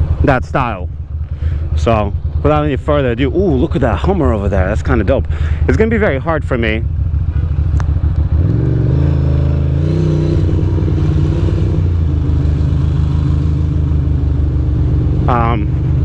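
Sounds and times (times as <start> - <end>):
motorcycle engine pulling away: 7.1 - 16.0.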